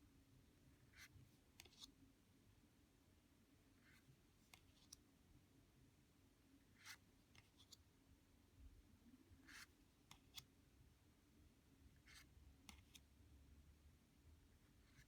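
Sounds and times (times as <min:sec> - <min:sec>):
cards being handled and flipped: 0:01.6 - 0:01.9.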